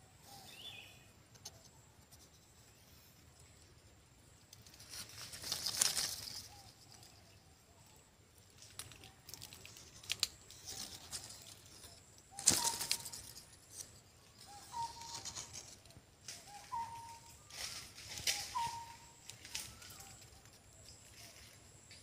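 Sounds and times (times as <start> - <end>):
rustling: 4.5 - 7.1, 8.4 - 21.6
bird call notes: 12.3 - 13.2, 14.4 - 15.6, 16.3 - 20.2.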